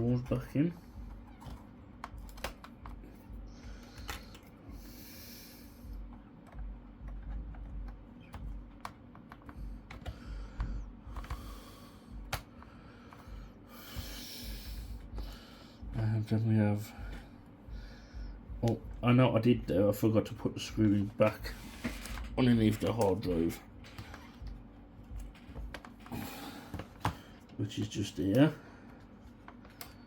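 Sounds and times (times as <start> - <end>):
clicks and taps of laptop parts: 6.1 - 11.4, 12.2 - 13.2.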